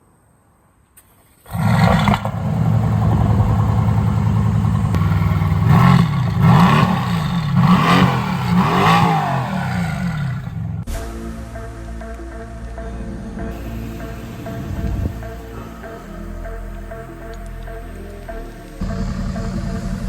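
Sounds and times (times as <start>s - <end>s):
car engine starting and idling: 1.0s - 20.0s
engine revving blips: 1.5s - 10.9s, 13.4s - 20.0s.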